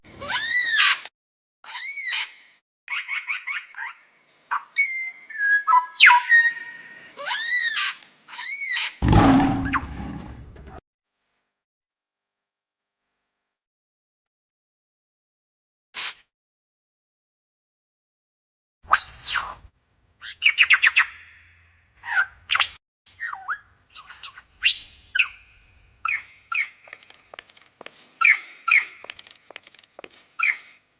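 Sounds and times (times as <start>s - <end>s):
high arched animal calls: 7.2s - 10.3s
harsh noisy animal call: 9.0s - 10.6s
bird chirping: 22.6s - 27.3s.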